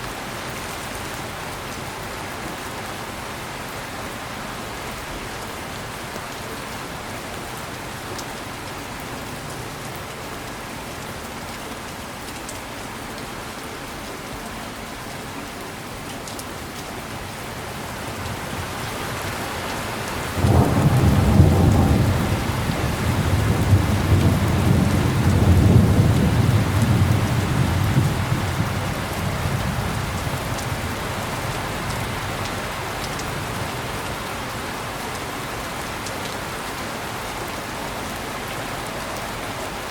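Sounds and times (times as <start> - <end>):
heavy rain falling: 0.0 - 39.9
thunder rumbling: 19.0 - 31.3.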